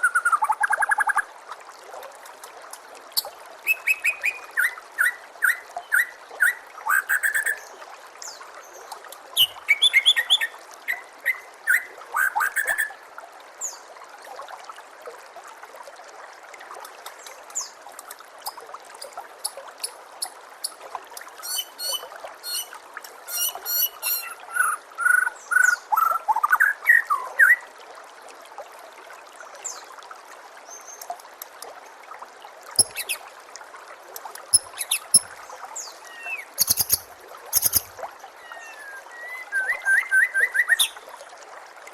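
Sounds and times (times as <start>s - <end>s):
water trickling: 0.0s - 41.9s
songbirds singing: 21.4s - 27.6s, 34.5s - 41.0s.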